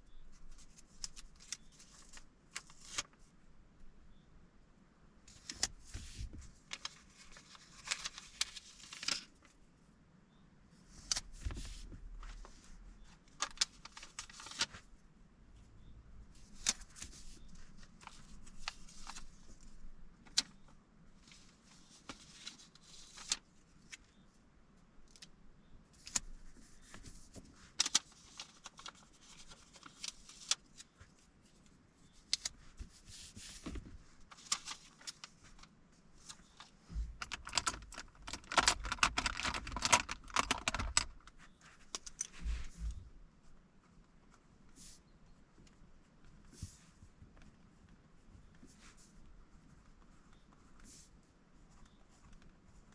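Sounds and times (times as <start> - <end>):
paper rustling: 5.3 - 9.6, 10.9 - 14.9, 16.3 - 24.2, 26.0 - 43.0, 45.6 - 52.9.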